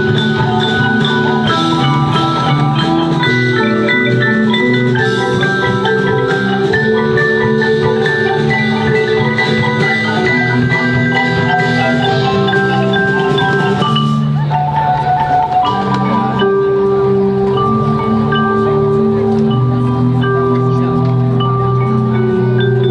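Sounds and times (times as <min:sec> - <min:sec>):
marimba ensemble playing: 0:00.0 - 0:22.9.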